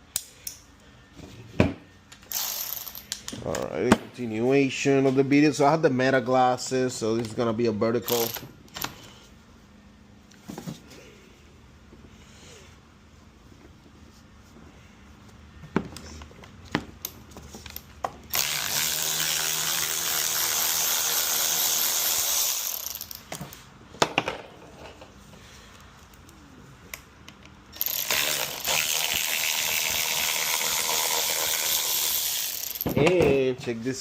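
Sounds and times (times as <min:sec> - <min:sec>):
power ratchet running: 0:02.3 - 0:03.0, 0:18.3 - 0:23.3, 0:27.8 - 0:32.9.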